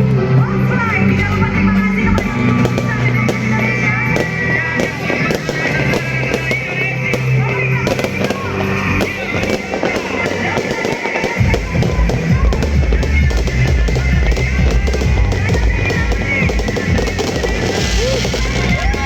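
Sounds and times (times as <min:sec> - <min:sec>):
fireworks bangs and crackles: 0:00.0 - 0:19.0
music with steady bass line: 0:00.0 - 0:19.0.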